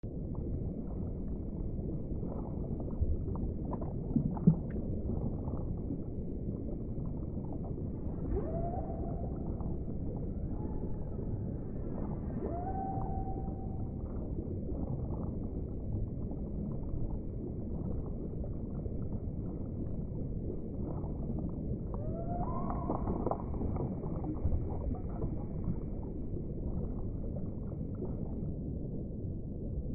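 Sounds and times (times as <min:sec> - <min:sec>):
underwater low rumble: 0:00.0 - 0:29.9
whale calls: 0:07.9 - 0:14.4, 0:21.9 - 0:26.0.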